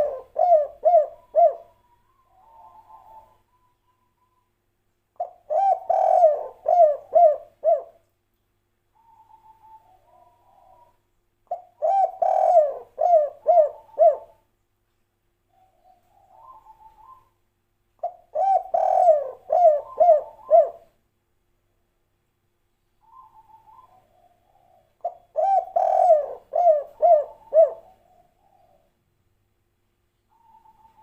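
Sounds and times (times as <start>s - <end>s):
dove cooing: 0.0s - 4.5s, 5.2s - 8.0s, 9.0s - 14.4s, 15.5s - 17.3s, 18.0s - 20.9s, 23.0s - 28.9s, 30.3s - 31.0s.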